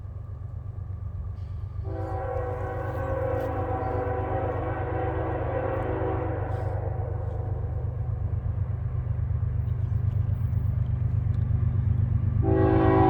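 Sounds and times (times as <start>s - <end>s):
locomotive rumble: 0.0s - 13.0s
locomotive air horn chord: 1.8s - 7.9s, 12.4s - 13.0s.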